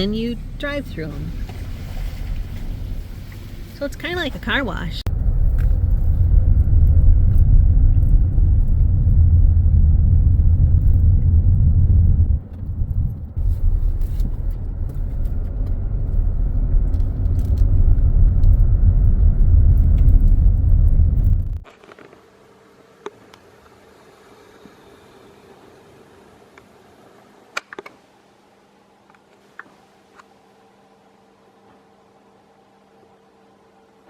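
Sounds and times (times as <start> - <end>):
vehicle low rumble: 0.0 - 22.2.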